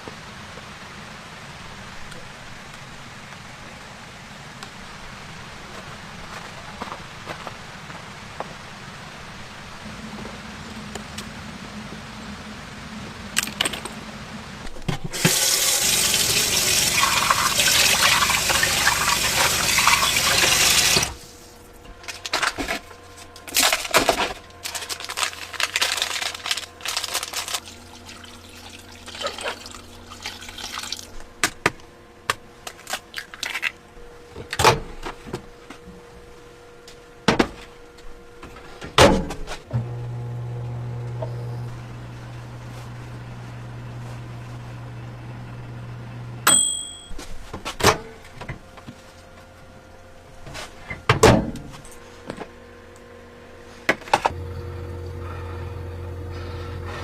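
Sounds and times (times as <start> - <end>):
water running: 15.2 - 21.6, 27.2 - 31.2.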